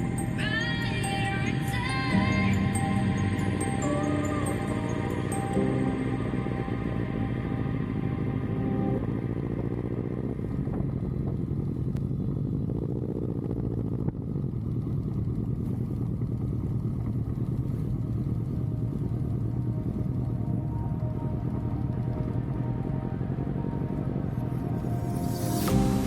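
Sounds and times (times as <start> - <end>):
motorcycle engine running: 7.4 - 22.7.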